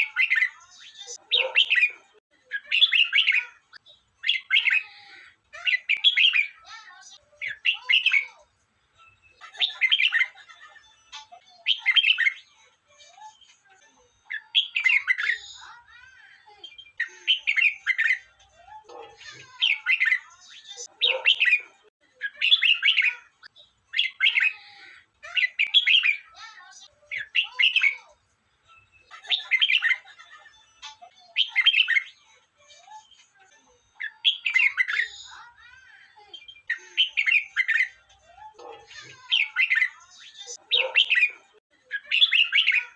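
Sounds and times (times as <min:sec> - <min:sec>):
bird warbling song: 0:00.0 - 0:04.9, 0:05.6 - 0:06.7, 0:14.3 - 0:15.8, 0:16.5 - 0:18.3, 0:18.9 - 0:23.3, 0:25.2 - 0:26.4, 0:34.0 - 0:35.5, 0:36.2 - 0:38.0, 0:38.6 - 0:42.9.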